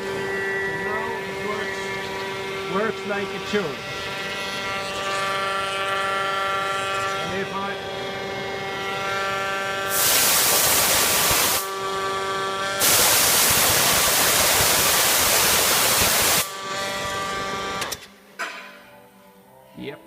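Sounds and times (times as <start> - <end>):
air compressor humming: 0.0 - 18.2
compressed air rushing: 9.9 - 11.7, 12.8 - 16.5.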